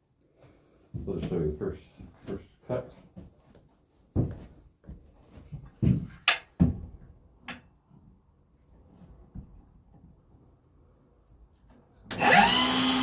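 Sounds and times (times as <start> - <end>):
tools and lumber knocking: 5.8 - 7.8.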